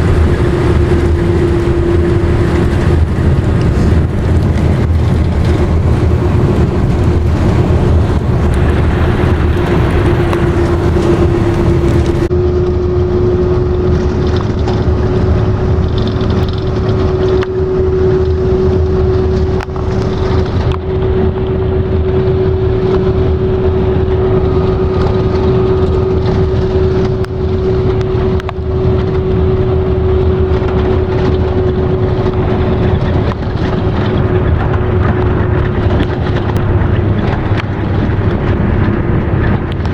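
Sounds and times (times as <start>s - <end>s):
vehicle road and engine drone: 0.0s - 39.9s.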